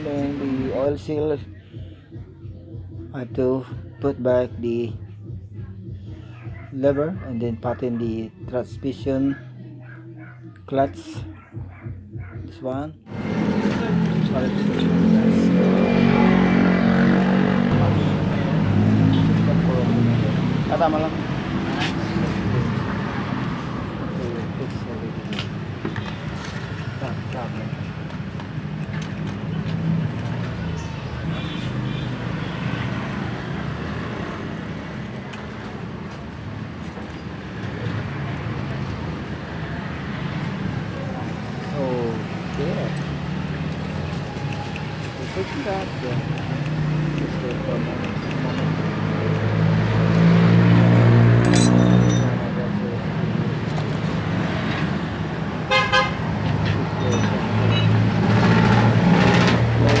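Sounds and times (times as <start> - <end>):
motor vehicle rumble: 13.0 - 60.0.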